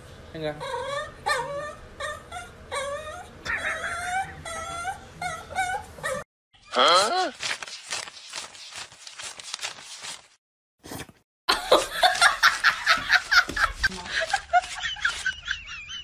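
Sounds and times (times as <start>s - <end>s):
banknotes being riffled: 7.0s - 10.4s
person laughing: 11.5s - 16.0s.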